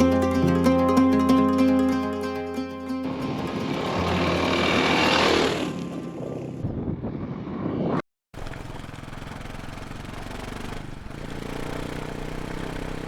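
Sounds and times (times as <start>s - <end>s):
motorcycle engine idling: 8.4s - 13.0s.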